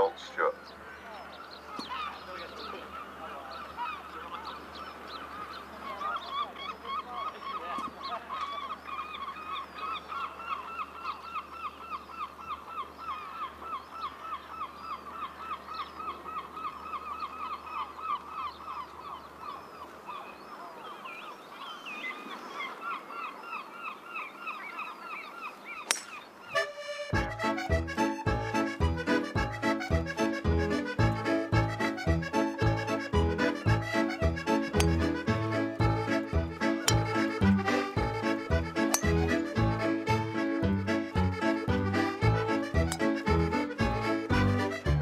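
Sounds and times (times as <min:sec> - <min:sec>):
birds honking: 0:00.0 - 0:45.0
other bird calls: 0:00.0 - 0:45.0
golf club striking ball: 0:25.9 - 0:26.2, 0:34.8 - 0:35.1, 0:36.8 - 0:37.1, 0:38.8 - 0:39.2
music: 0:26.6 - 0:45.0.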